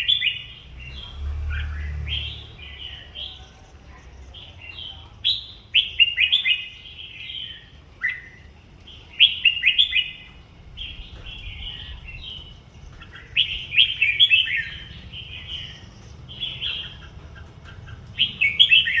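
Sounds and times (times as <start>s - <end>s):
bulbul chirping calls: 9.0s - 19.0s.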